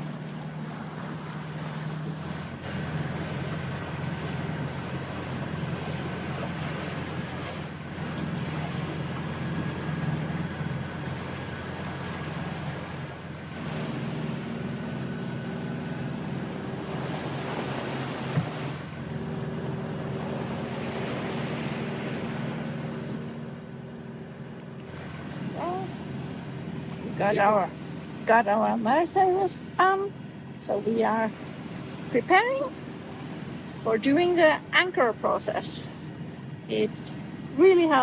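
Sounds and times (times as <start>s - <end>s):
steady low hum: 0.0s - 38.0s
water rushing along hull: 0.0s - 38.0s
wind: 0.0s - 38.0s.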